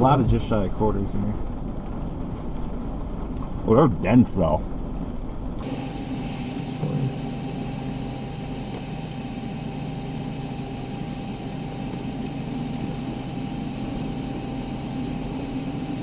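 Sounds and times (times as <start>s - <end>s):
thin steady hum: 5.6s - 16.0s
vehicle engine idling: 5.6s - 16.0s.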